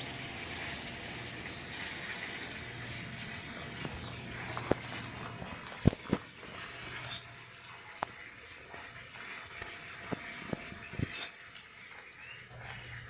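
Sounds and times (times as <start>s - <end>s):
bird high rising chirps: 0.2s - 0.5s, 7.1s - 7.4s, 10.9s - 11.6s.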